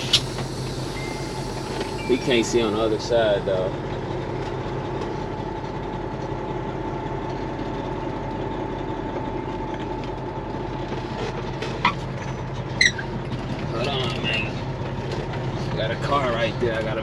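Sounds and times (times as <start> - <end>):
thin steady whine: 0.0 - 3.8
truck diesel engine running: 0.0 - 17.0.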